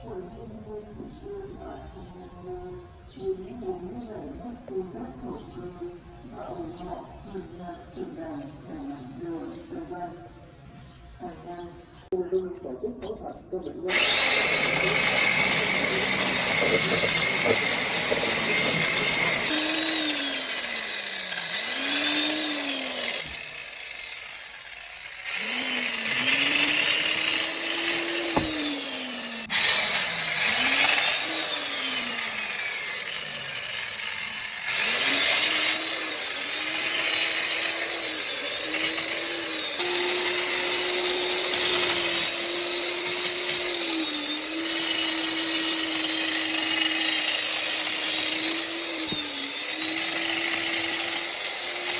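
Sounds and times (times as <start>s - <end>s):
electric chainsaw motor revving: 13.9s - 51.9s.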